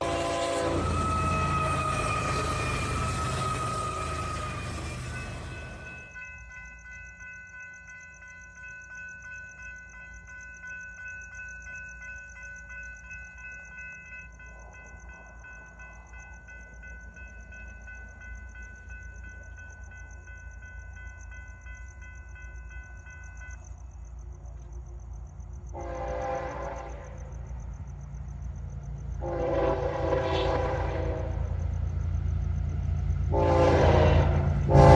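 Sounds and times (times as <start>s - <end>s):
locomotive horn blasts: 0.0s - 5.9s, 25.8s - 27.2s, 29.2s - 31.5s, 33.3s - 34.9s
steady high tone: 0.0s - 7.0s
diesel freight train rumble: 0.0s - 7.6s, 11.9s - 34.9s.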